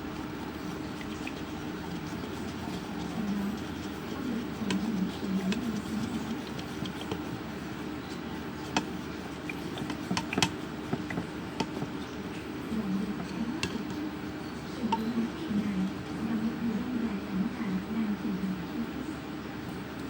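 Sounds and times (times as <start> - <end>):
glue scraping: 0.0 - 14.0
stirrer knocking against container: 0.0 - 16.3.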